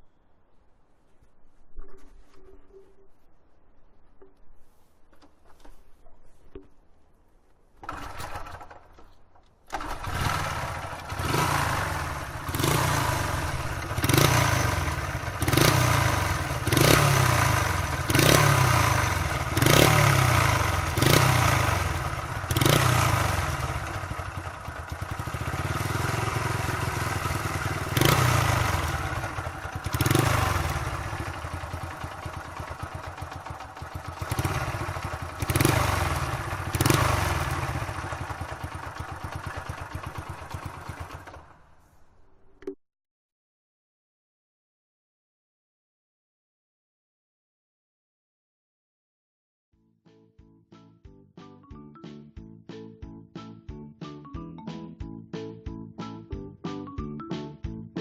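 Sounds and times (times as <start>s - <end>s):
small motorcycle engine revving: 7.8s - 8.8s, 9.7s - 41.7s.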